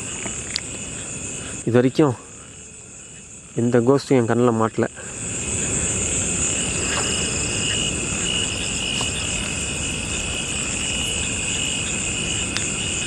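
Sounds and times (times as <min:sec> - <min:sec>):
crickets trilling: 0:00.0 - 0:13.0
frogs calling: 0:00.0 - 0:13.0.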